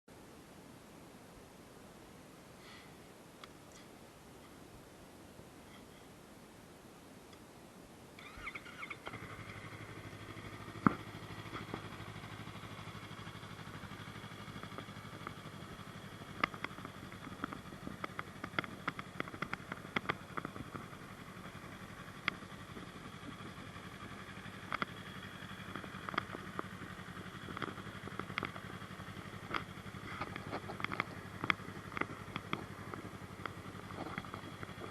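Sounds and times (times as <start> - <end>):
motorcycle engine idling: 8.2 - 34.9.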